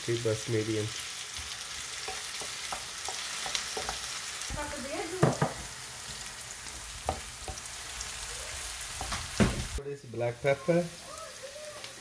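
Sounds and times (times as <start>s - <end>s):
vegetables sizzling in oil: 0.0s - 12.0s
wooden spoon knocking pan: 2.0s - 4.0s, 5.1s - 5.7s, 7.0s - 7.7s.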